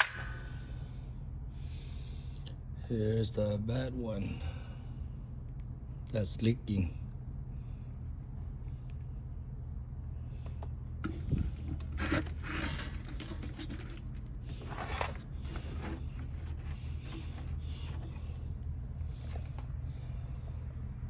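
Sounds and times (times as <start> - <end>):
steady low hum: 0.0 - 21.0
objects rubbing and scraping: 11.0 - 18.4.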